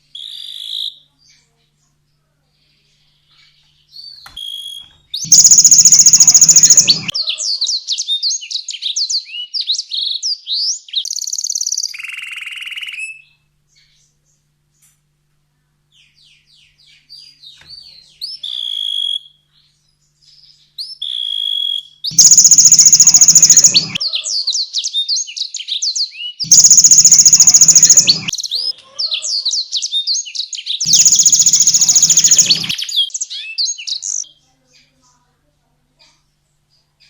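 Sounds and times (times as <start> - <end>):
canary singing: 3.9 - 9.9, 21.0 - 34.2.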